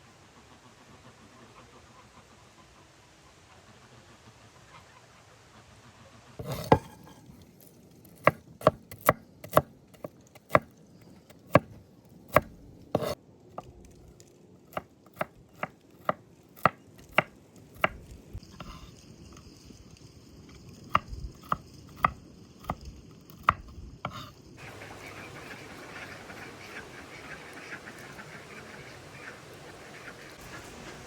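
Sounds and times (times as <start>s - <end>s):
knife chopping on cutting board: 6.4s - 7.2s, 8.2s - 10.7s, 11.4s - 11.7s, 12.3s - 13.2s, 14.7s - 18.0s.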